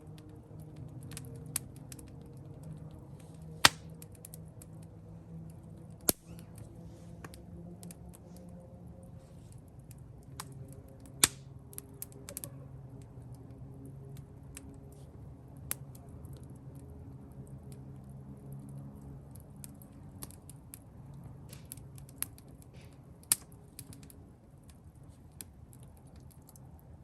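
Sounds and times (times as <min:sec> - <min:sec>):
campfire crackling: 0:00.1 - 0:27.0
fire popping: 0:03.2 - 0:04.6, 0:06.0 - 0:06.6, 0:09.7 - 0:12.3.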